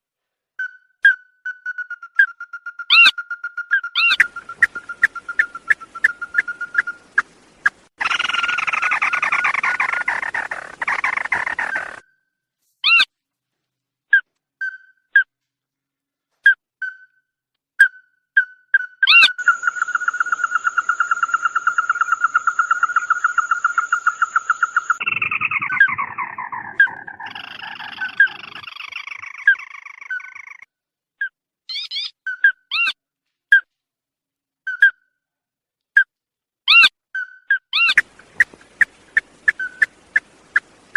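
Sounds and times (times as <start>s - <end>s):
bird whistled calls: 0.6s - 7.1s, 39.5s - 39.9s
rapid bird calls: 1.5s - 12.0s, 19.0s - 30.7s, 37.7s - 40.9s.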